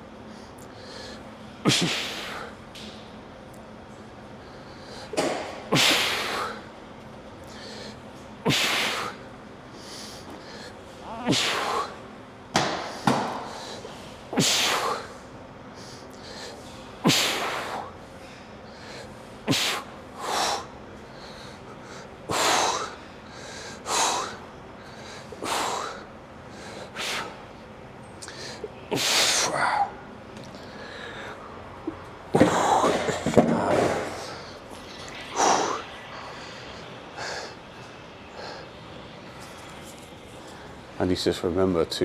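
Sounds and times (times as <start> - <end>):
man breathing forcefully: 9.8 - 12.0, 18.7 - 27.4, 30.6 - 39.6.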